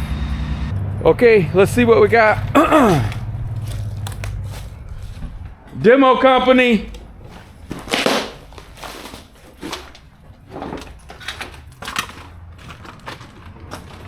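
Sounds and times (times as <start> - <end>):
excavator engine hum: 0.0 - 14.0
door crunching and scraping: 1.2 - 14.0.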